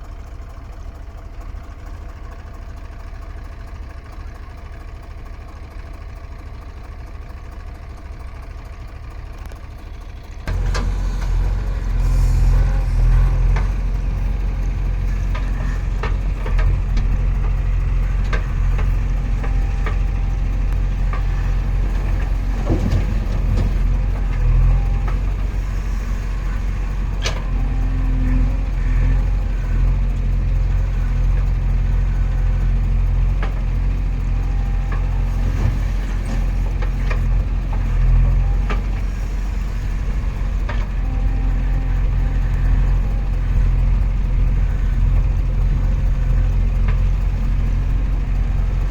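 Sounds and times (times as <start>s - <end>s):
diesel engine running: 0.0s - 48.9s
sharp knocks and clanks: 15.2s - 25.2s.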